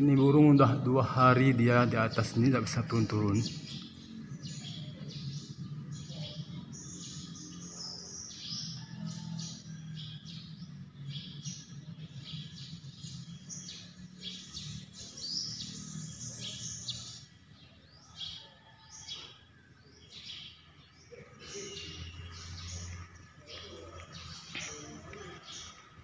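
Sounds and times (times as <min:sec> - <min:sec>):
small bird chirping: 0:02.0 - 0:19.3.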